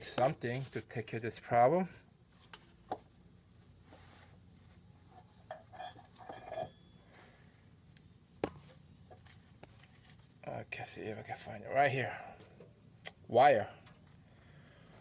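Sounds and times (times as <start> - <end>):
low steady hum: 0.0 - 15.0
small metal clinks: 5.1 - 7.2.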